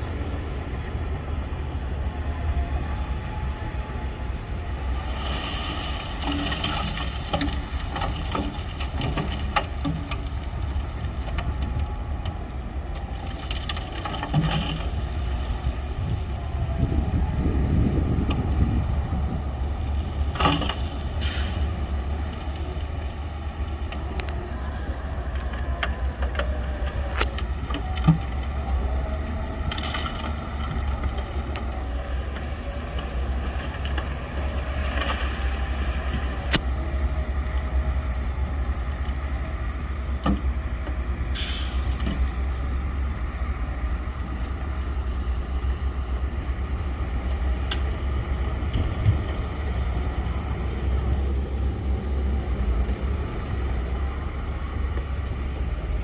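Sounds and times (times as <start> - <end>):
diesel machinery rumbling: 0.0 - 56.0.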